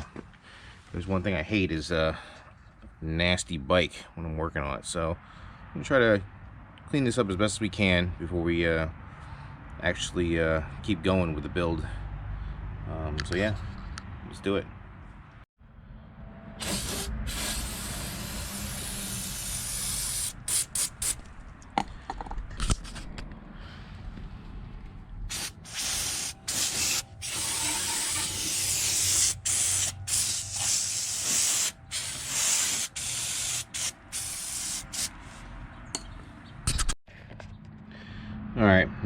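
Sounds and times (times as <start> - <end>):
spray hissing: 16.6 - 21.2, 25.3 - 35.2.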